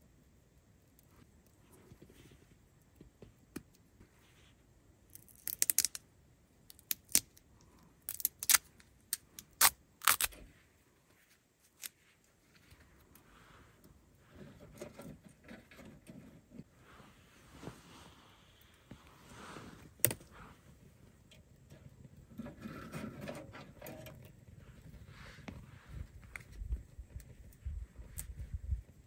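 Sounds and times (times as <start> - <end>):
soft rustling: 1.0 - 3.4, 4.0 - 4.9, 10.4 - 21.2, 24.4 - 29.0.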